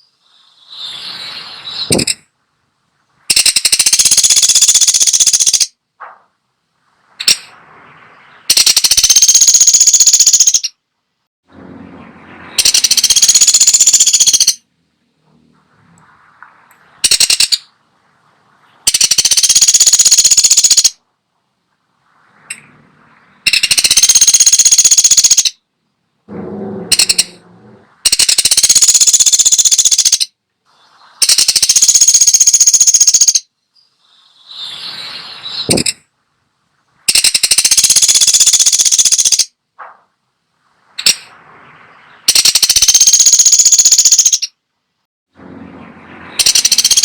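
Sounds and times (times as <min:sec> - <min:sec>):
woodpecker rattling calls: 0:03.3 - 0:05.8, 0:08.5 - 0:10.8, 0:12.6 - 0:14.6, 0:17.0 - 0:17.7, 0:18.8 - 0:21.0, 0:23.4 - 0:25.6, 0:26.7 - 0:27.4, 0:28.0 - 0:30.4, 0:31.2 - 0:33.5, 0:35.6 - 0:36.0, 0:37.1 - 0:39.6, 0:41.0 - 0:41.3, 0:42.1 - 0:44.6, 0:46.4 - 0:47.0.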